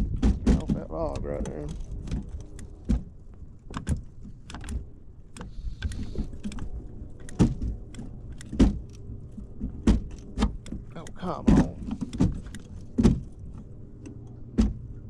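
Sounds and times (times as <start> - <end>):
hull knocking against wood: 0.0 - 4.8, 7.3 - 13.6, 14.5 - 14.9
electric trolling motor humming: 0.0 - 15.0.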